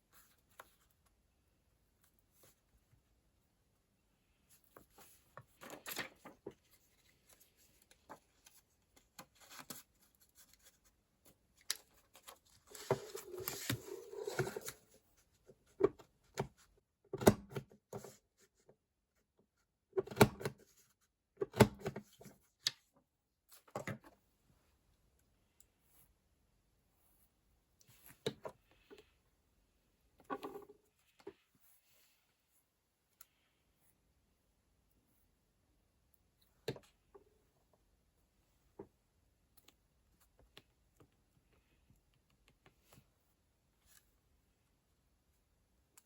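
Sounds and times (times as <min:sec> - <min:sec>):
paper rustling: 0:04.8 - 0:10.9, 0:11.6 - 0:14.9.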